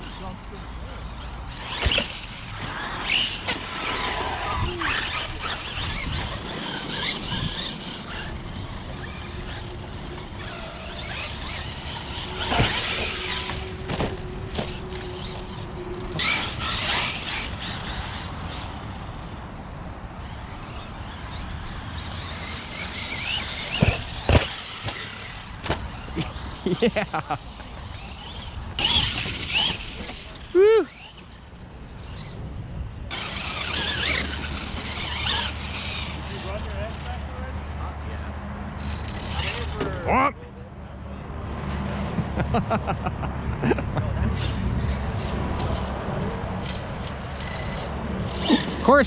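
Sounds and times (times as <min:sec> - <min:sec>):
electric motor squeals and whines: 0:00.0 - 0:19.4, 0:20.1 - 0:32.4, 0:33.1 - 0:37.4, 0:38.7 - 0:40.0
steady motor hum: 0:00.0 - 0:49.0.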